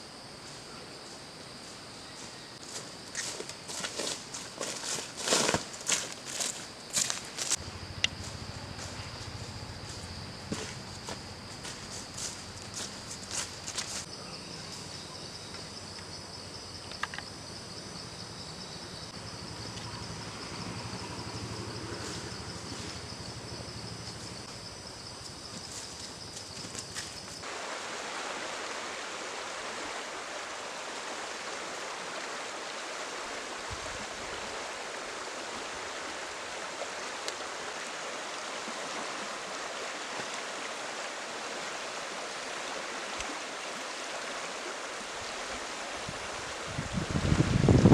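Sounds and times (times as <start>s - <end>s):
stream water rushing: 26.6s - 47.9s.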